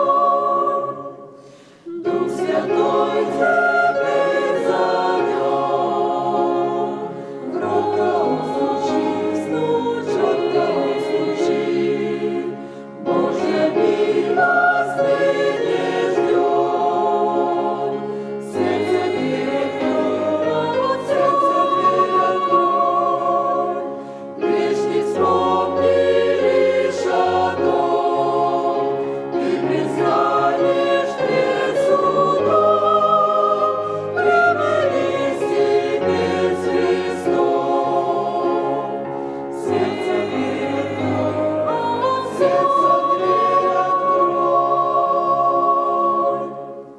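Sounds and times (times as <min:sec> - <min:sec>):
church choir singing a hymn: 0:00.0 - 0:46.9.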